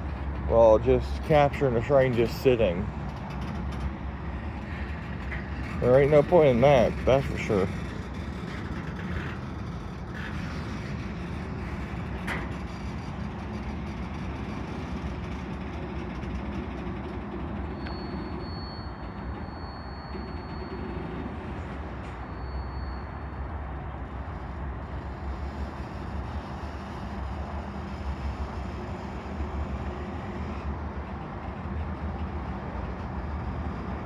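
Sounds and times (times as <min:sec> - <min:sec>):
freight train rumbling on rails: 0:00.0 - 0:34.0
high squeal: 0:00.9 - 0:15.5, 0:17.0 - 0:23.6.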